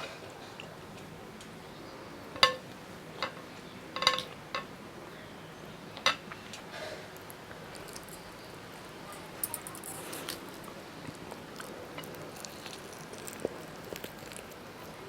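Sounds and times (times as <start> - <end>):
cutlery clinking against a dish: 3.2 - 4.7, 9.1 - 10.6.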